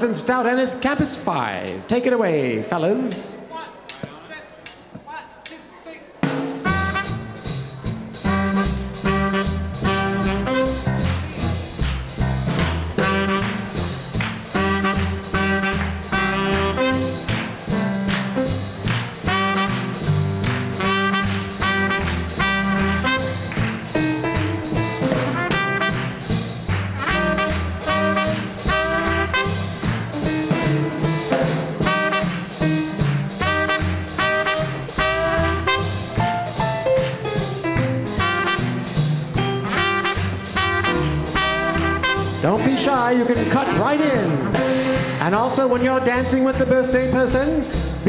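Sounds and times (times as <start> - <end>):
drums swing beat: 3.9 - 48.0
trumpet: 6.6 - 46.8
piano: 6.6 - 48.0
upright bass: 6.6 - 48.0
saxophone: 8.2 - 11.8, 12.9 - 17.7, 18.8 - 36.9, 37.8 - 42.8.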